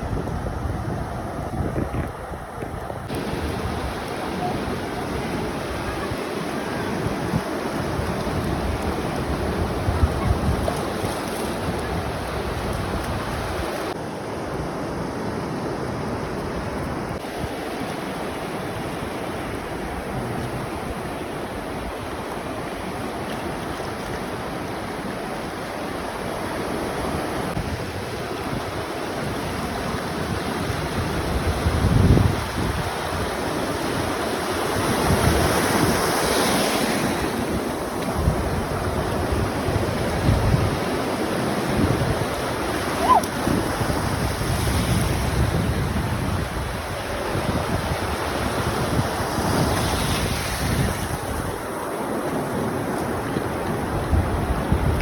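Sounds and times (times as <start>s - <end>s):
wind buffeting microphone: 0.0s - 14.0s, 27.5s - 55.0s
waves washing onto shore: 0.0s - 55.0s.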